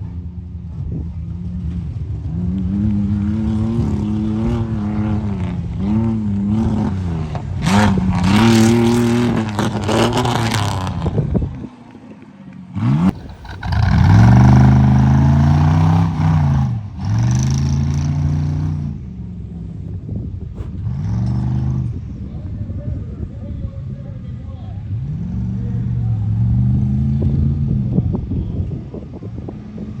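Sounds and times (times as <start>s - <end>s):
truck engine revving hard: 2.3s - 11.4s, 12.8s - 19.1s, 20.6s - 22.1s, 24.9s - 28.0s.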